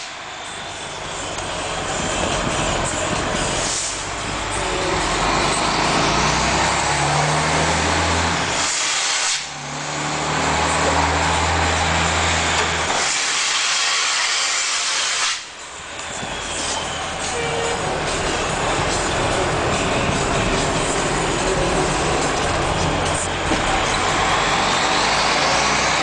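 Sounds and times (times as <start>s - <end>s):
loud diesel truck engine: 0.0s - 26.0s.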